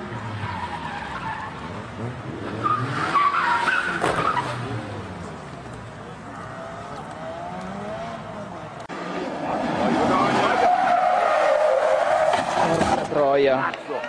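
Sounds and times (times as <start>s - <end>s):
tyres skidding: 0.0s - 14.0s
rally car engine revving: 6.3s - 13.1s.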